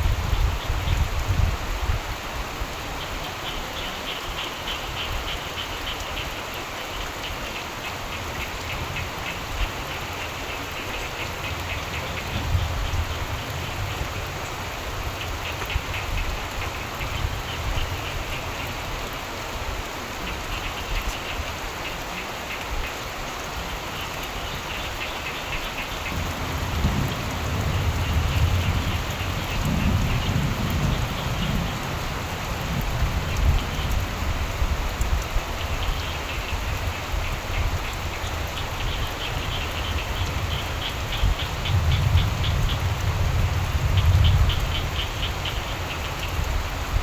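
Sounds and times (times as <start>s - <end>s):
steady rain falling: 0.0s - 47.0s
frogs trilling: 3.0s - 19.1s, 20.2s - 34.1s, 35.4s - 46.7s
low rumble of thunder: 11.4s - 18.3s, 26.0s - 47.0s.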